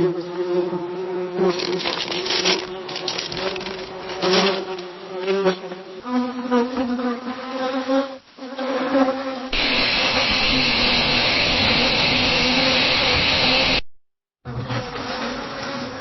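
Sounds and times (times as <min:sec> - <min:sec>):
bee buzzing in flight: 0:00.0 - 0:13.8, 0:14.5 - 0:16.0
steady hissy buzz: 0:09.6 - 0:13.8.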